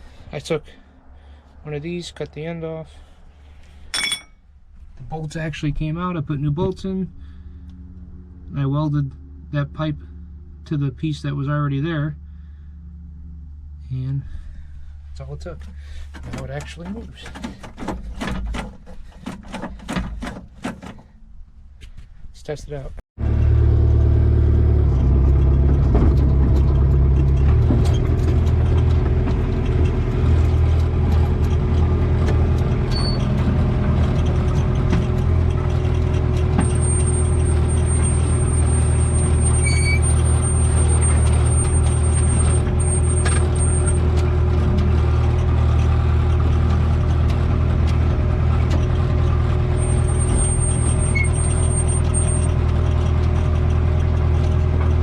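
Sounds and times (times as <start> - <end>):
excavator diesel engine running: 23.2 - 55.0
thin high squeal: 36.6 - 44.0, 49.8 - 52.5.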